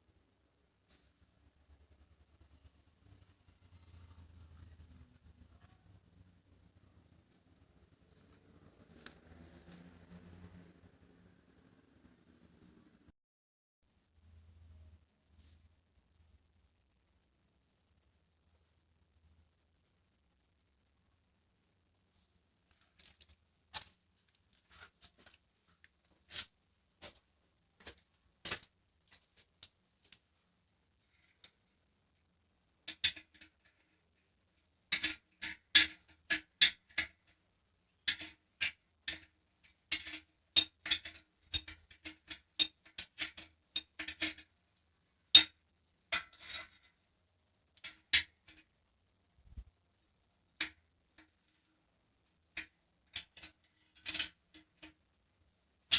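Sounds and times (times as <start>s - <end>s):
metal parts clicking and clinking: 32.9s - 33.9s, 34.9s - 37.3s, 38.0s - 44.5s, 52.5s - 55.0s.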